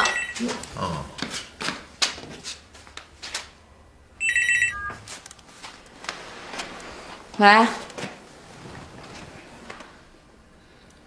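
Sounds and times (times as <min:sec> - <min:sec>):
telephone ringing: 0:00.0 - 0:00.4, 0:04.2 - 0:05.1.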